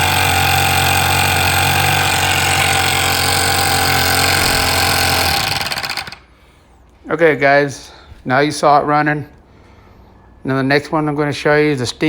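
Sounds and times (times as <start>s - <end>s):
model engine running: 0.0s - 6.2s.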